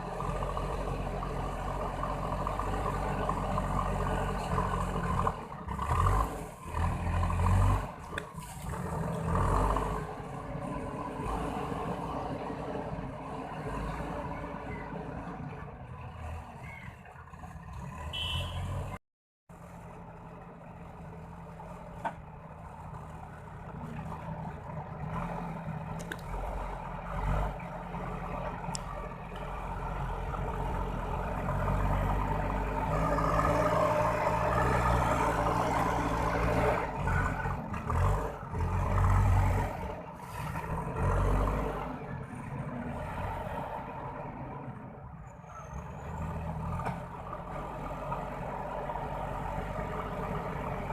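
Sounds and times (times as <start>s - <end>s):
backhoe diesel engine running: 0.0s - 50.9s.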